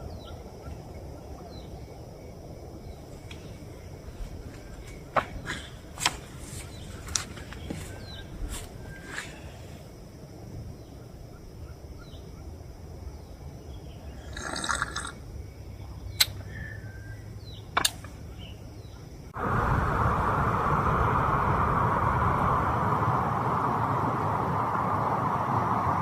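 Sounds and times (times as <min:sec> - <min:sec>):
heavy rain hissing: 0:19.3 - 0:26.0.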